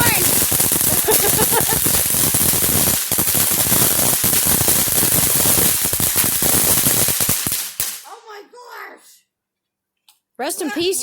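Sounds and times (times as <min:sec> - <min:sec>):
firecrackers banging: 0:00.0 - 0:08.3.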